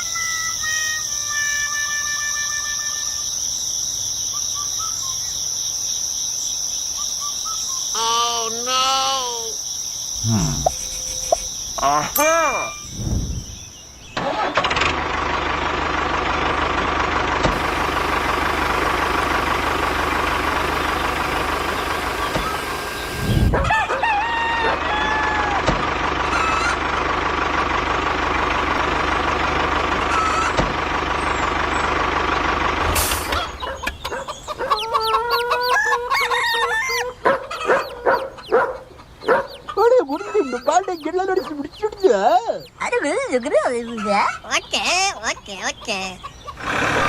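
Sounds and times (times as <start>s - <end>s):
rooster crowing: 23.6s - 25.7s, 34.6s - 38.5s.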